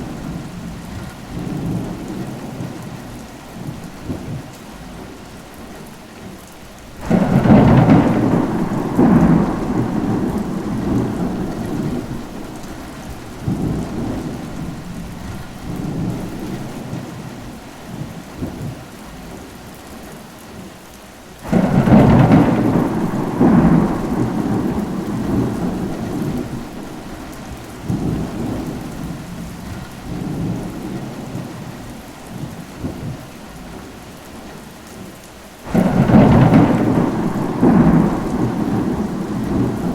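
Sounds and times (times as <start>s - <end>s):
steady rain: 0.0s - 39.9s
rolling thunder: 7.0s - 18.8s, 21.4s - 33.3s, 35.7s - 39.9s.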